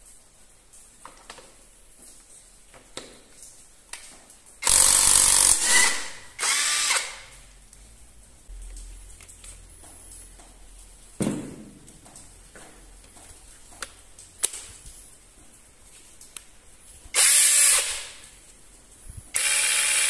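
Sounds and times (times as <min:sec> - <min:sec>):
cordless power tool motor: 0:04.6 - 0:07.3, 0:17.2 - 0:18.1, 0:19.3 - 0:20.0.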